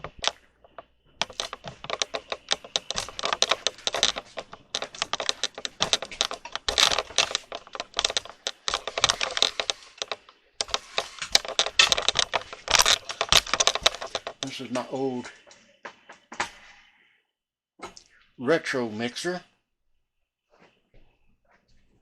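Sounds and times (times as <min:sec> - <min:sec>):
hard objects clicking and clattering: 0:00.0 - 0:16.6.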